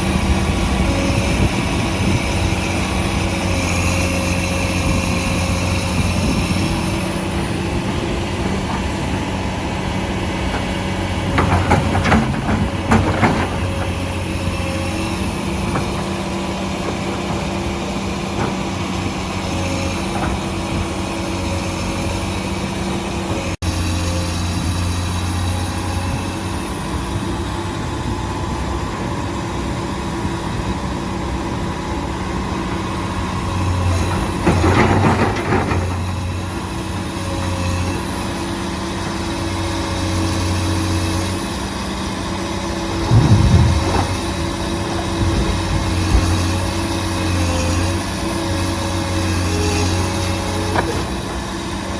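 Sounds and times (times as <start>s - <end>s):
heavy machine engine running: 0.0s - 51.9s
clattering knocks: 43.0s - 46.6s.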